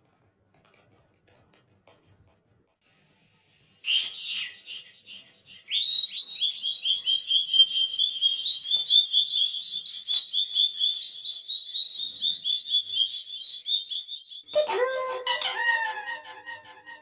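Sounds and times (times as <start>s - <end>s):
bird chirping rapidly: 3.9s - 14.8s.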